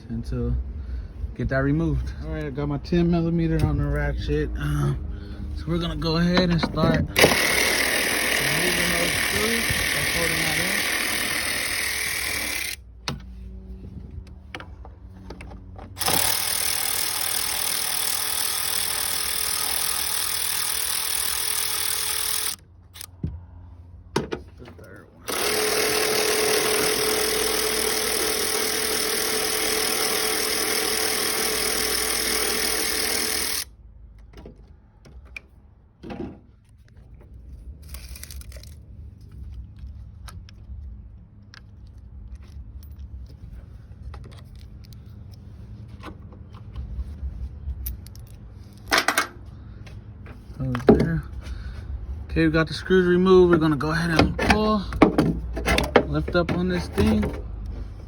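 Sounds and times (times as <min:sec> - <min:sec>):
power ratchet running: 0:07.1 - 0:12.8, 0:15.9 - 0:23.1, 0:25.2 - 0:33.7, 0:37.8 - 0:38.8
clicks and knocks of tools: 0:47.8 - 0:51.1.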